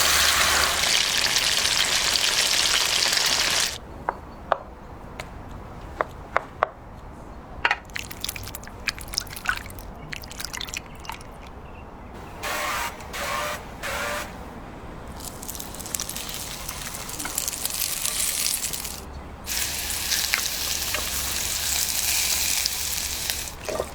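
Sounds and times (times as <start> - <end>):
running tap water: 0.0 - 3.8, 15.1 - 23.9.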